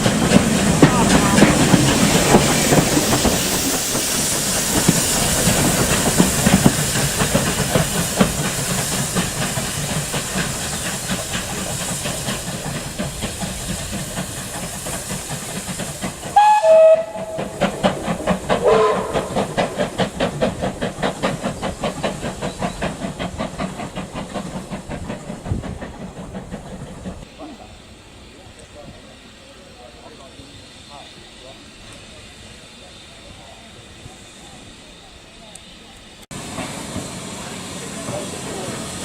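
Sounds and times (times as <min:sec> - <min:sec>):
locomotive exhaust beats: 0:00.0 - 0:27.3
steam locomotive hissing: 0:00.0 - 0:39.0
steam whistle: 0:16.3 - 0:17.6, 0:18.6 - 0:19.4.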